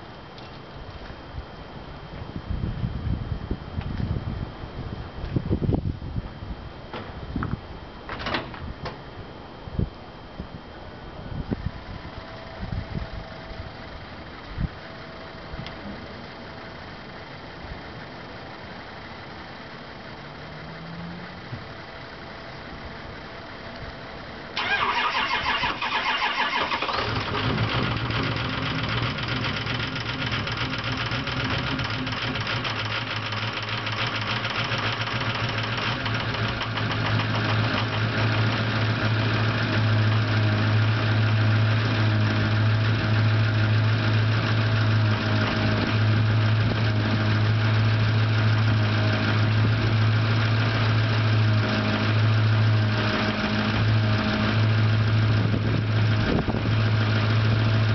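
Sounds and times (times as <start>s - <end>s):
diesel engine idling: 11.7s - 57.9s
starter motor cranking: 24.6s - 38.5s.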